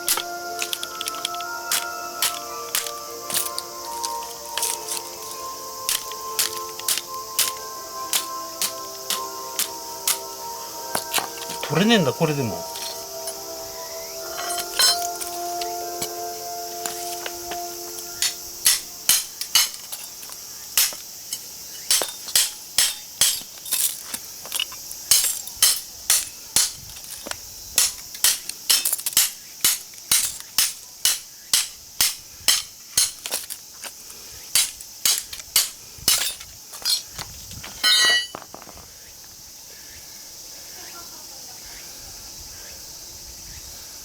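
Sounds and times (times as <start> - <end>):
hammer blows on metal: 0.0 - 13.6, 14.2 - 19.9
crickets chirping: 0.0 - 44.0.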